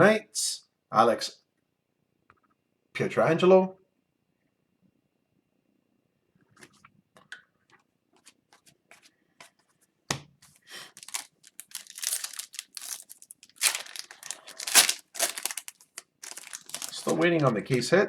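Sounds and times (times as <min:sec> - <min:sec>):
card pack wrapper tearing: 0:11.0 - 0:17.8.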